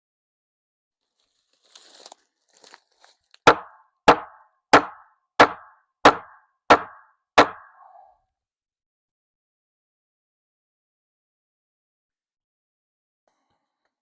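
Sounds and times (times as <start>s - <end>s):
hammer blows on wood: 3.5s - 8.1s.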